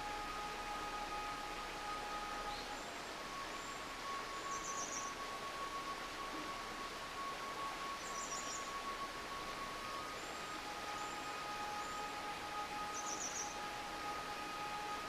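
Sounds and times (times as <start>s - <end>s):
forest stream murmuring: 0.0s - 15.0s
small birds chirping: 13.0s - 13.6s.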